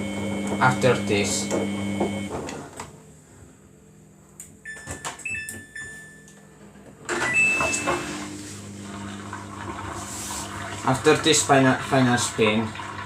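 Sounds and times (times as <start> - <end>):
washing machine noise: 0.0 - 3.2, 4.7 - 13.0
short electronic beeps: 7.2 - 8.1.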